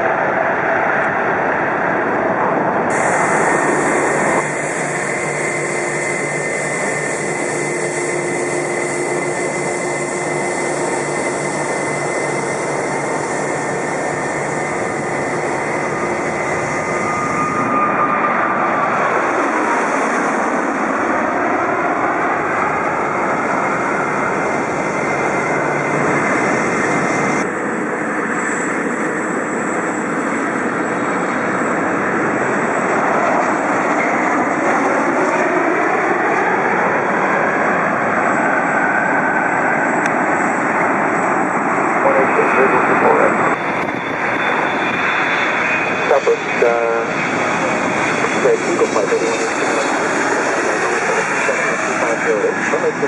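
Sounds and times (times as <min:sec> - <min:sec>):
whine dropping in pitch: 0:00.0 - 0:21.1
jet engines roaring: 0:00.0 - 0:53.0.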